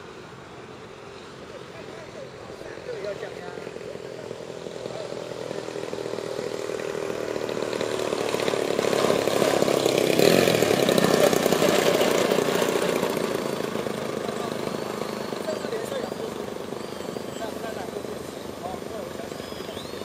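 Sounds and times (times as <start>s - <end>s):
model plane engine flying past: 0.0s - 20.0s.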